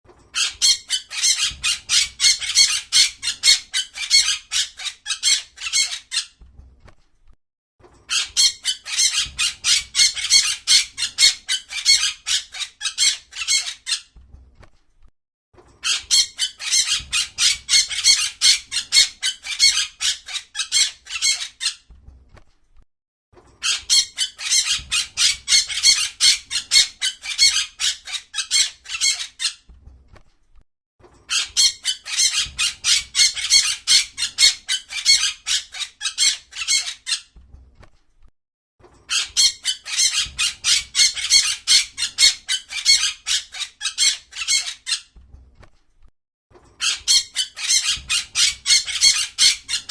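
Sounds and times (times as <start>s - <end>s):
parrot squawking: 0.4s - 6.4s, 8.1s - 14.1s, 15.8s - 21.8s, 23.6s - 29.6s, 31.3s - 37.3s, 39.1s - 45.1s, 46.8s - 49.9s.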